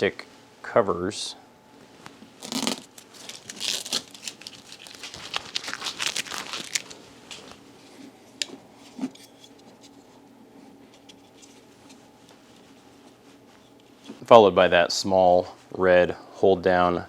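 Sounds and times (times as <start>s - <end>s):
plastic crinkling and crackling: 2.4s - 7.6s.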